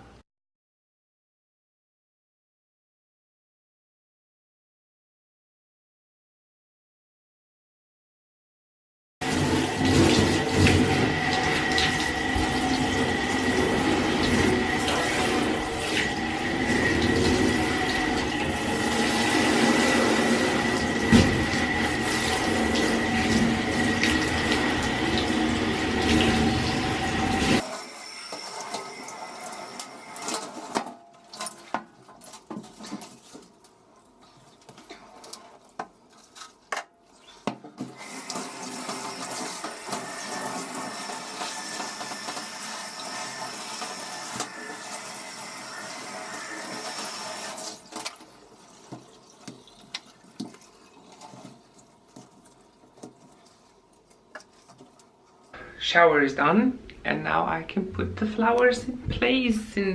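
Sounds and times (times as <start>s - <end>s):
shower water running over plants: 9.2s - 27.6s, 44.9s - 55.5s.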